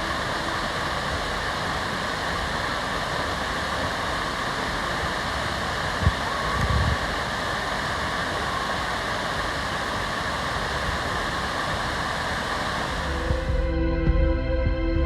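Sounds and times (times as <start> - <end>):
waterfall rushing: 0.0 - 13.6
music: 13.1 - 15.0.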